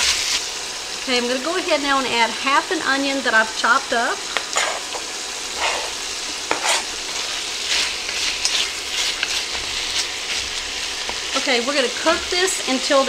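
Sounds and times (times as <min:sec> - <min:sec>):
chicken and onion sizzling: 0:00.0 - 0:13.0
wooden spoon scraping pot: 0:04.5 - 0:11.4.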